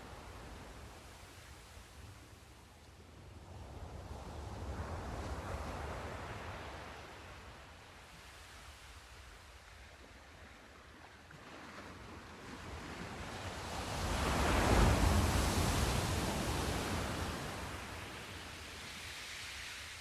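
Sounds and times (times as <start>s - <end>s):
wave breaking with rushing wash: 13.1s - 20.0s.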